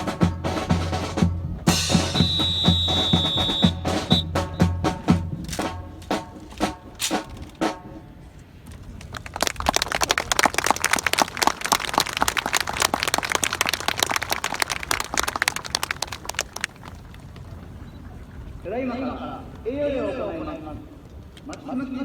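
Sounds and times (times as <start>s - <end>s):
crowd applauding: 9.0s - 18.3s.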